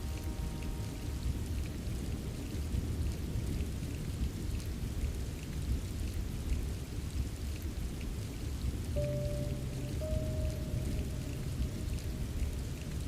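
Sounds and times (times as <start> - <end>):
light drip ticks: 0.0 - 13.0
rain falling: 0.0 - 13.0
deep rumble: 9.0 - 13.0.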